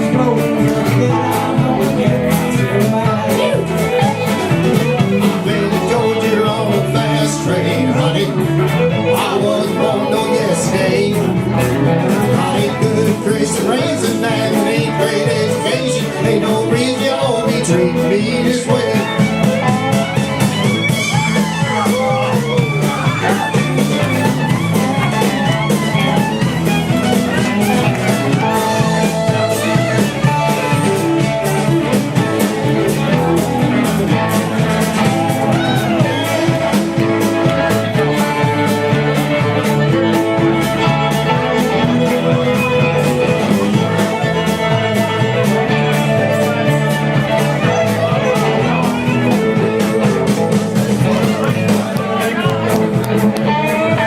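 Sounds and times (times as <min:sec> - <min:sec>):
bass line: 0:00.0 - 0:54.0
country band playing: 0:00.0 - 0:54.0
lead guitar: 0:00.0 - 0:54.0
steady drum beat: 0:00.0 - 0:54.0.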